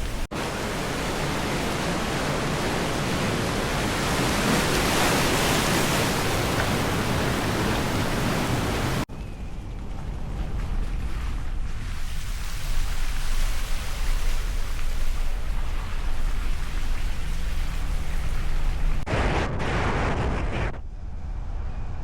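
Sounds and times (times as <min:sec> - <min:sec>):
steady rushing noise: 0:09.7 - 0:22.0
quieter rushing noise: 0:19.0 - 0:22.0.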